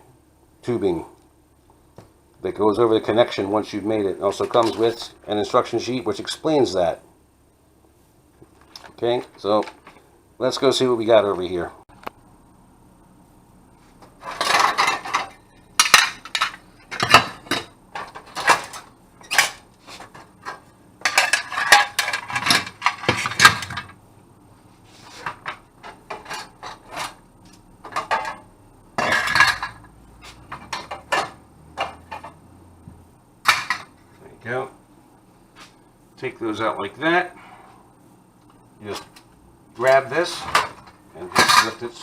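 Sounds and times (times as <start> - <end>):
metal stove parts clattering: 14.2 - 24.0, 25.2 - 27.2, 27.8 - 32.4, 33.4 - 34.1, 39.9 - 42.0.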